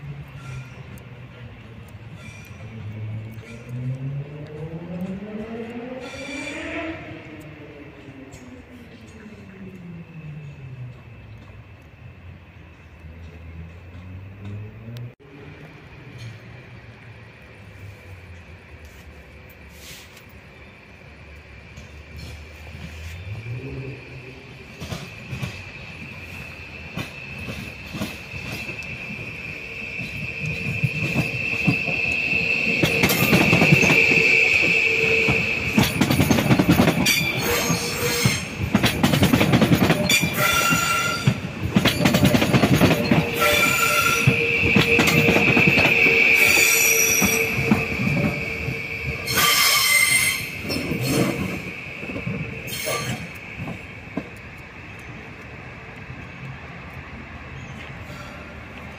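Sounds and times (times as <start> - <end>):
rumble of train cars: 0.0 - 58.9
train wheels squealing: 0.2 - 1.4, 2.0 - 4.3, 4.9 - 11.8, 18.9 - 55.2
wheels clicking over rail joints: 24.6 - 57.0.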